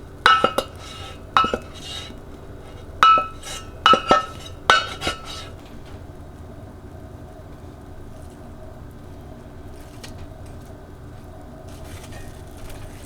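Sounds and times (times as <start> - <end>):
dishes clinking: 0.2 - 6.1.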